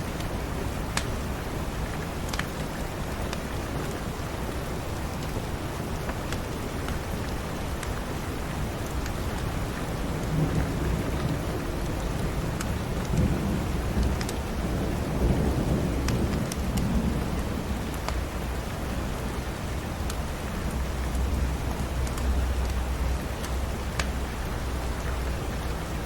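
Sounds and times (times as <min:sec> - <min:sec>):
steady rain: 0:00.0 - 0:26.0
wood fire crackling: 0:00.1 - 0:26.0
thunder rumbling: 0:09.8 - 0:19.8.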